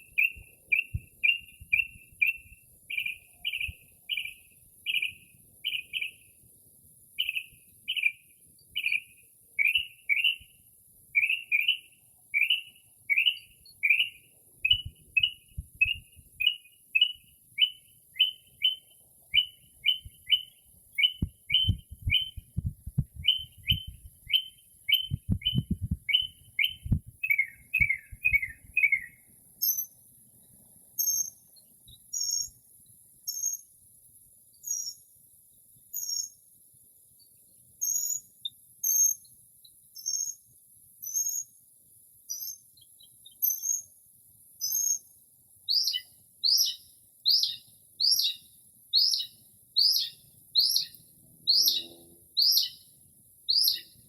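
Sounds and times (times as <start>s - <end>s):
mockingbird singing: 0.0s - 6.3s, 7.2s - 10.6s, 11.2s - 29.9s, 44.6s - 52.9s, 53.5s - 54.0s
low thumps: 21.2s - 24.2s, 25.0s - 26.1s.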